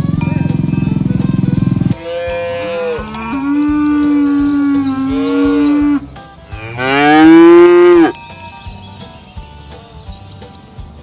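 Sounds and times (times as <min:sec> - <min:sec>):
cow mooing: 0:01.9 - 0:08.1.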